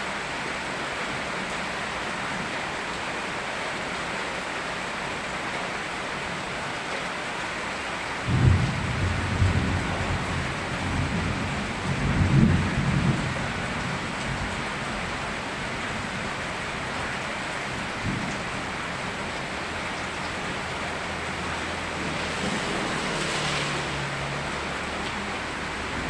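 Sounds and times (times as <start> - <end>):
steady rain: 0.0 - 26.0
low rumble of thunder: 8.2 - 17.1, 17.8 - 24.4.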